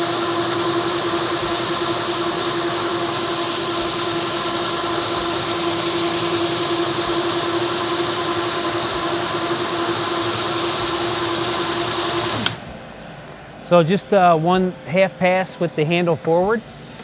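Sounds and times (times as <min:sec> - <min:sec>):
floor sanding machine humming: 0:00.0 - 0:12.7.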